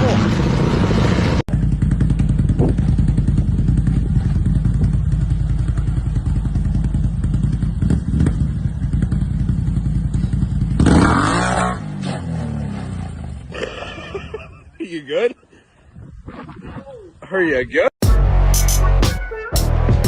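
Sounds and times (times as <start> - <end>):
vehicle engine running: 0.0 - 11.3.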